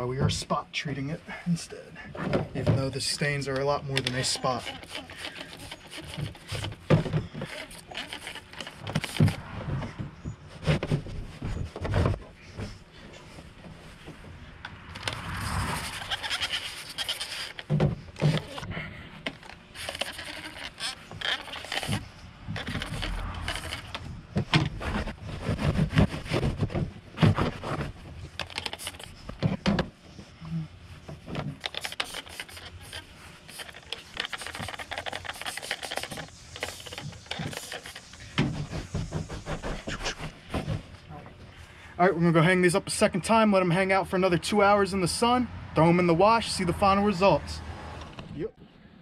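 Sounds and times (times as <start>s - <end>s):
spray bottle spritzing: 4.1s - 6.8s, 7.4s - 9.4s, 19.8s - 22.0s, 31.6s - 40.5s
fabric being rubbed: 31.8s - 41.1s.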